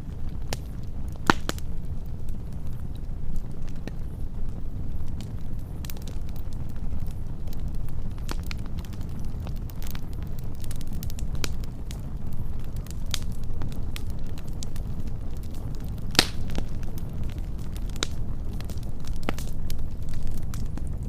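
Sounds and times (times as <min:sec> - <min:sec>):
low fire rumble: 0:00.0 - 0:21.0
wood fire crackling: 0:00.0 - 0:21.0.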